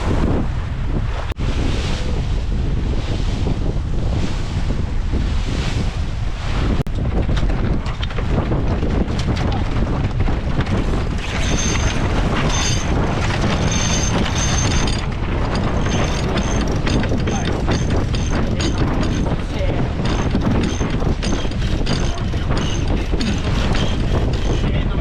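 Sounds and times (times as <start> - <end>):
water rushing along hull: 0.0 - 25.0
wind buffeting microphone: 0.0 - 25.0.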